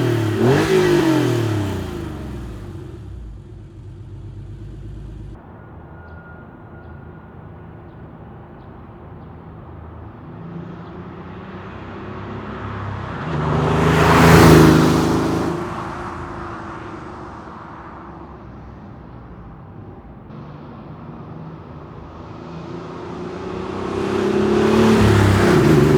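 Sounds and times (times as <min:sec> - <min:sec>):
car exhaust driving past: 0:00.0 - 0:05.4.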